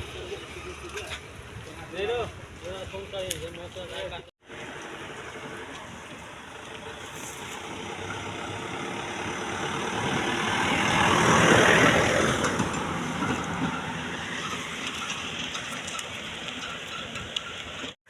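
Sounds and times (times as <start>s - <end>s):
vehicle passing by: 7.0s - 16.5s.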